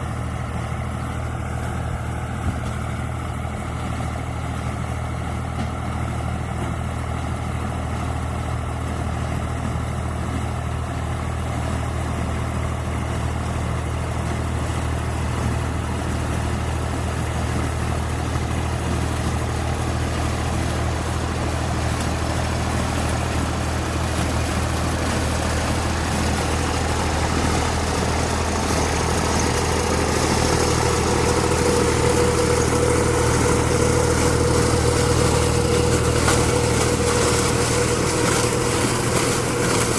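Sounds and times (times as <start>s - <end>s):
tractor diesel engine running: 0.0s - 39.9s
steady machine whine: 22.7s - 39.9s.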